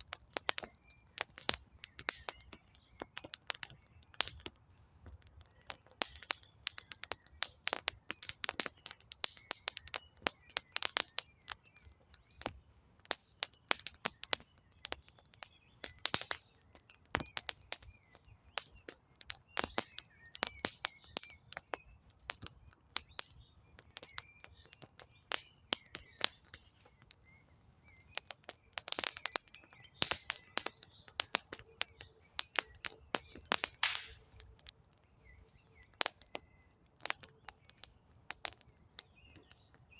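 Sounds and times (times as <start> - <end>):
campfire crackling and popping: 0.0 - 39.9
faint bird chirps: 0.1 - 39.9.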